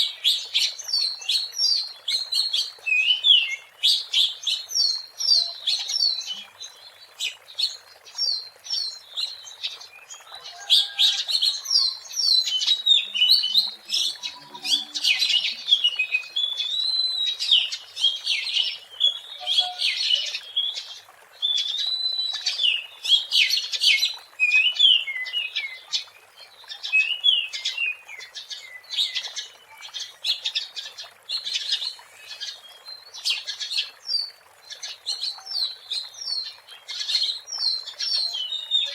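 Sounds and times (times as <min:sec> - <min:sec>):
songbird singing whistled phrases: 0:11.7 - 0:20.8, 0:21.4 - 0:23.3, 0:37.5 - 0:38.9.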